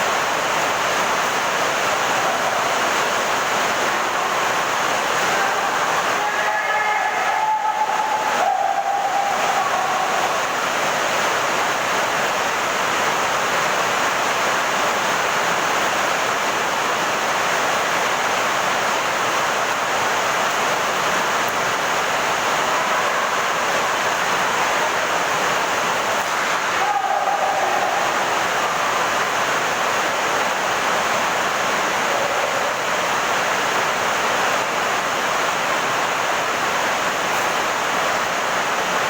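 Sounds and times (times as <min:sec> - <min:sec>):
heavy rain falling: 0:00.0 - 0:39.0.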